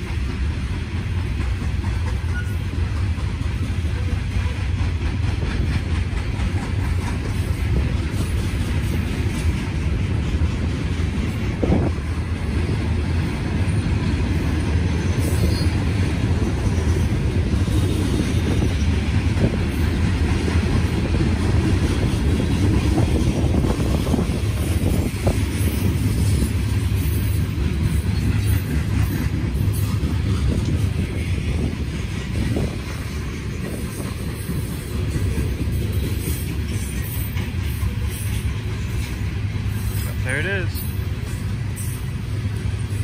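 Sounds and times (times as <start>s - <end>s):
wheel-on-rail rumble: 0.0s - 43.0s
faint wheel squeals: 2.3s - 2.7s.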